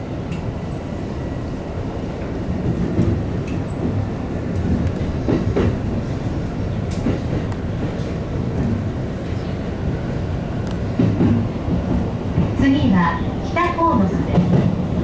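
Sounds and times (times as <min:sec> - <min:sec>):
train wheels rumbling on track: 0:00.0 - 0:15.0
rail joint clacks: 0:02.2 - 0:15.0.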